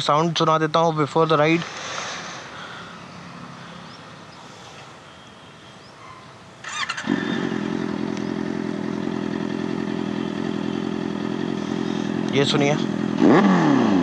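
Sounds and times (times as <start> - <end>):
electric starter cranking: 6.6 - 10.0
motorcycle engine idling: 6.6 - 14.0.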